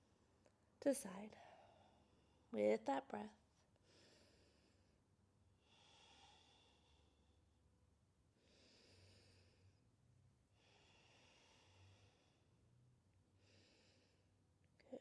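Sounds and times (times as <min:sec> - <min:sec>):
soft slow breathing: 0:01.3 - 0:02.5, 0:03.8 - 0:07.6, 0:08.3 - 0:12.7, 0:13.3 - 0:14.4.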